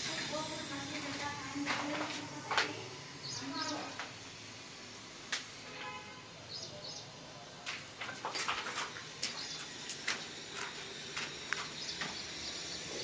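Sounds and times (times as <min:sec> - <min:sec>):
birds chirping: 0:00.1 - 0:04.1, 0:06.3 - 0:13.0
sharp clicks and knocks: 0:07.7 - 0:12.2.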